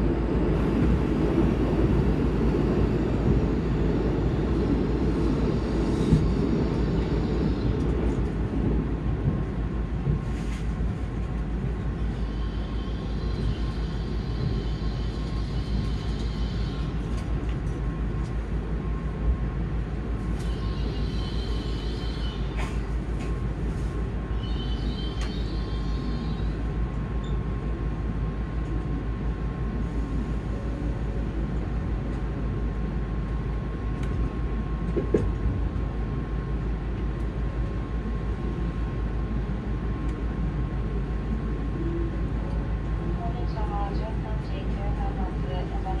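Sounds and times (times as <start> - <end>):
train wheels rumbling: 0.0 - 27.3.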